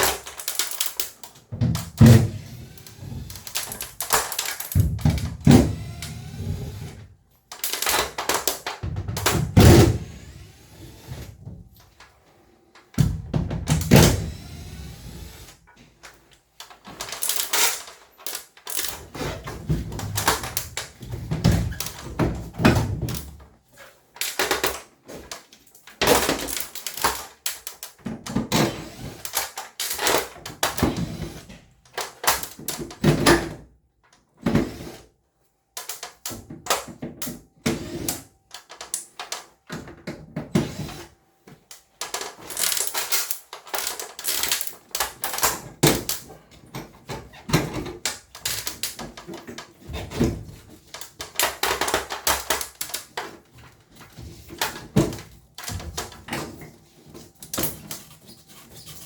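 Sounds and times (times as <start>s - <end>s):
tools and parts clattering: 16.0s - 28.5s, 41.8s - 59.0s.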